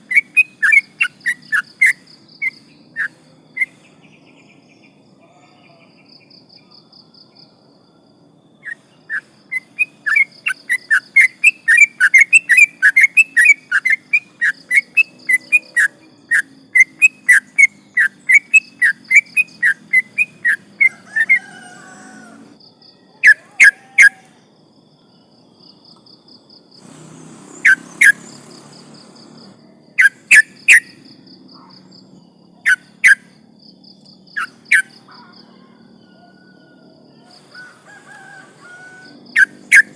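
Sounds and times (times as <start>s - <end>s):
bulbul singing: 0.0s - 5.0s, 8.6s - 21.8s, 26.8s - 35.6s, 38.7s - 39.9s
faint pulsing insect trill: 0.0s - 39.8s.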